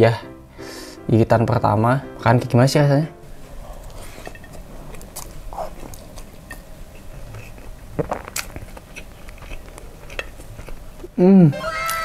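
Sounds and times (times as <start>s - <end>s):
person chewing food: 3.5s - 11.2s.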